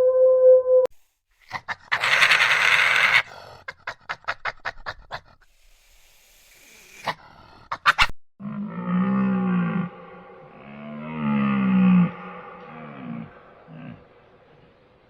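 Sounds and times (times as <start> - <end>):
animal panting huffs: 3.2 - 8.1
rough breathy animal burst: 5.2 - 7.8
wolf howling: 8.7 - 14.3.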